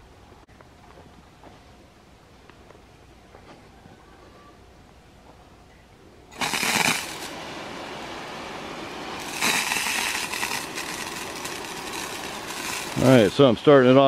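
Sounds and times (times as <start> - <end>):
water spraying from hose: 6.3 - 14.0.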